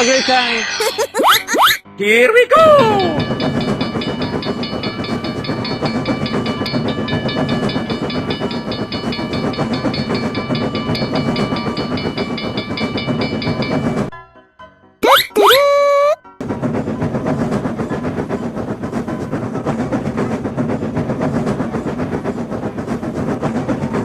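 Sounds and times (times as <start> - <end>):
rapid repeating high ringing: 0.0 - 1.8, 2.8 - 14.1
train rumble: 2.6 - 14.1, 16.4 - 24.0.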